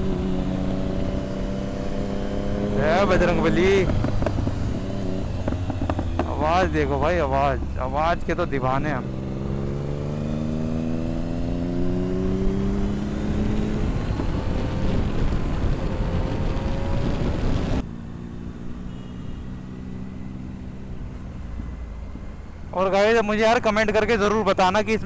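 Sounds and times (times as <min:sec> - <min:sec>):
rushing wind: 0:00.0 - 0:18.7
motorbike engine accelerating: 0:00.0 - 0:18.8
traffic: 0:00.0 - 0:25.0.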